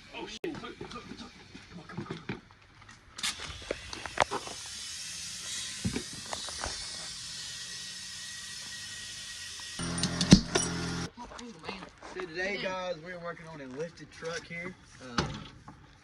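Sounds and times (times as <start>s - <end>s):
sharp clicks and knocks: 9.8s - 11.1s.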